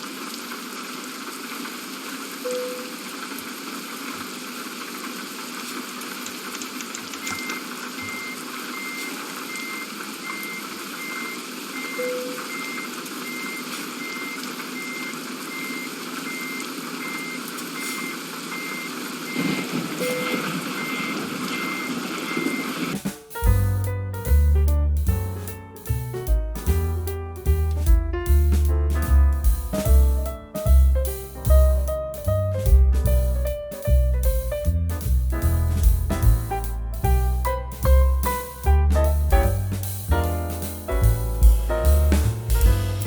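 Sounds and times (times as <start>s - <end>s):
high electronic beeps: 7.3s - 22.8s
music: 23.0s - 43.0s
steady rumbling noise: 23.4s - 43.0s.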